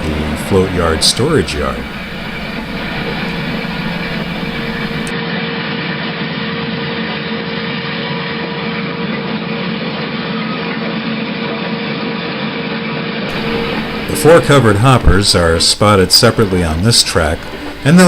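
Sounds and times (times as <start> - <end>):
diesel locomotive engine running: 0.0 - 5.1, 13.3 - 18.0.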